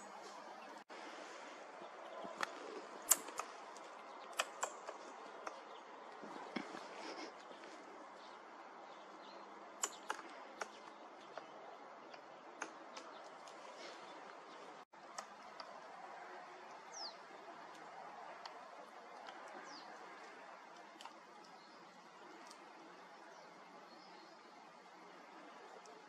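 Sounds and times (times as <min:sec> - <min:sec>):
sharp ticks: 0:02.4 - 0:05.6, 0:09.8 - 0:11.5.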